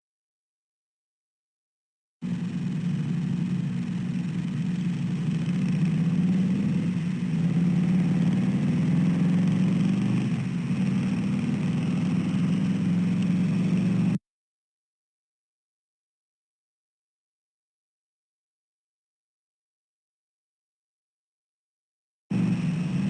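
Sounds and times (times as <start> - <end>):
low engine hum: 2.2 - 14.2, 22.3 - 23.0.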